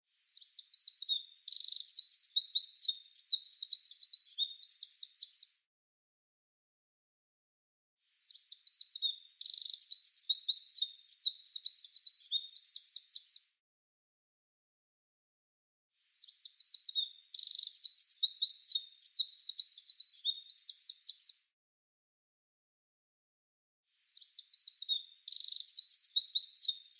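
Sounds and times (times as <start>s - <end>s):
songbird singing: 0.2s - 5.6s, 8.1s - 13.5s, 16.0s - 21.4s, 24.0s - 26.9s.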